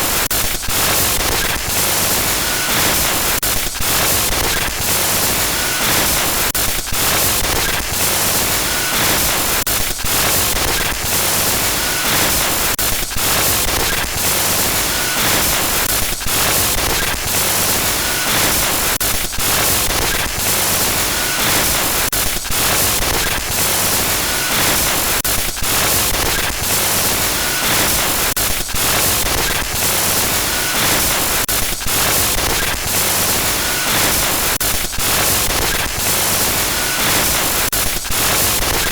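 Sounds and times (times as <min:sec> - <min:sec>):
harsh crackling static: 0:10.2 - 0:38.9.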